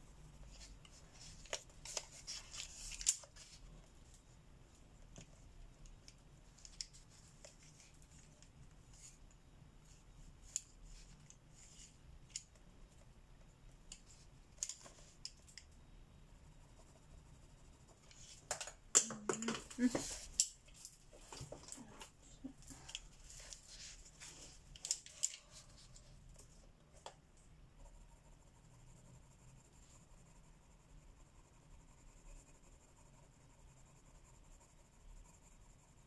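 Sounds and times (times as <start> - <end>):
pencil scratching on paper: 16.3 - 18.4, 27.7 - 36.0.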